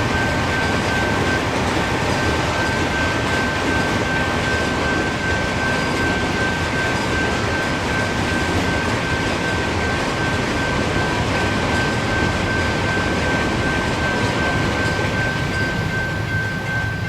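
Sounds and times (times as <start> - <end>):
freight train rumbling: 0.0 - 17.0
high steady ringing tone: 0.0 - 17.0.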